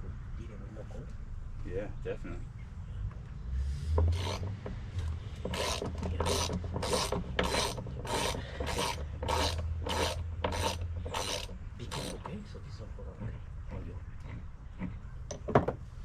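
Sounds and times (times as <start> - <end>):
hand tool rasping on wood: 4.0 - 12.2.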